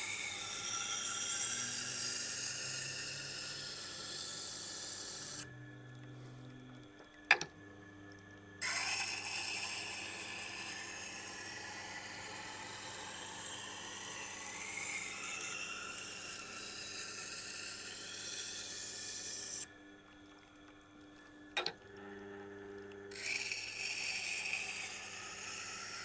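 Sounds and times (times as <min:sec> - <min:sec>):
blade grinding on wet grindstone: 0:00.0 - 0:05.5, 0:08.6 - 0:19.7, 0:23.1 - 0:26.0
low steady hum: 0:05.4 - 0:08.6.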